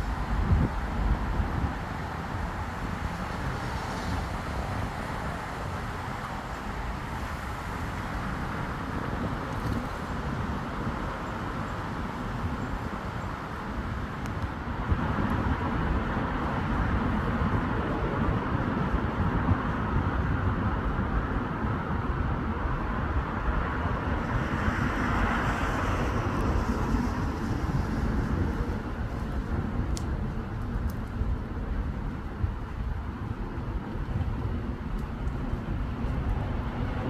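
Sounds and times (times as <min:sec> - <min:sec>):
road traffic passing: 0:00.0 - 0:09.3, 0:21.3 - 0:37.0.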